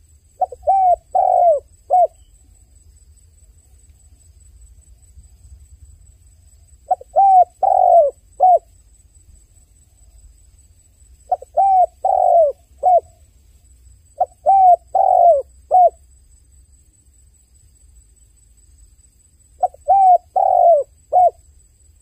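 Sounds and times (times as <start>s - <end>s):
dove cooing: 0.4s - 2.3s, 6.8s - 8.7s, 11.3s - 13.2s, 14.2s - 16.0s, 19.6s - 21.4s.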